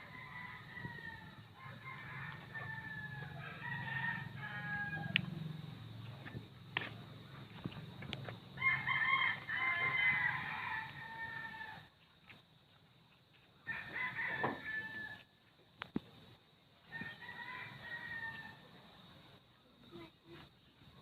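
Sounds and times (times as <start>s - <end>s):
rooster crowing: 0.0s - 5.3s, 8.6s - 11.9s, 13.6s - 15.3s, 16.9s - 18.7s.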